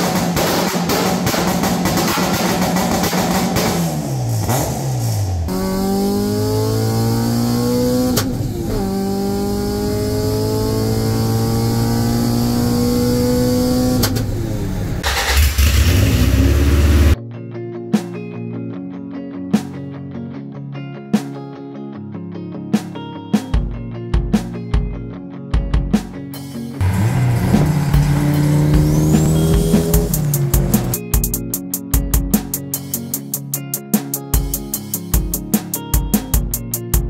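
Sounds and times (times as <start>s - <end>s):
car engine revving: 0.0s - 17.2s, 26.8s - 31.2s.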